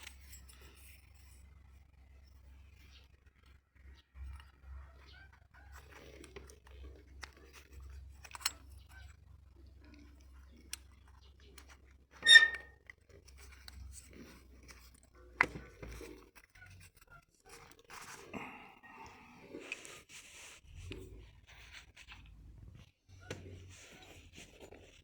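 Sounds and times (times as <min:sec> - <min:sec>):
metal parts and hand tools clicking: 0:07.2 - 0:08.8, 0:11.6 - 0:12.7.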